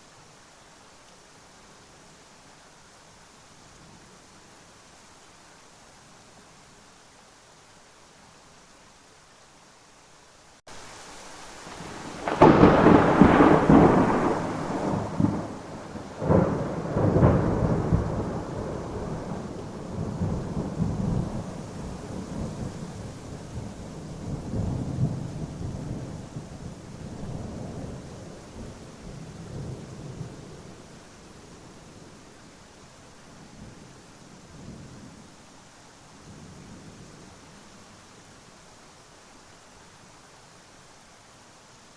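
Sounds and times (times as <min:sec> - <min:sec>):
steady rain: 0:00.0 - 0:41.9
thunderclap rolling into rumble: 0:11.8 - 0:22.8.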